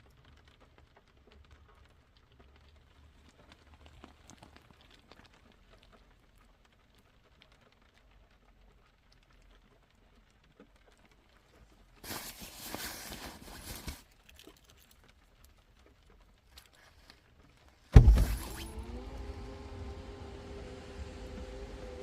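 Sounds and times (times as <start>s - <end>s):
rustling handling noise: 12.0s - 15.0s
car engine starting and idling: 18.0s - 22.0s.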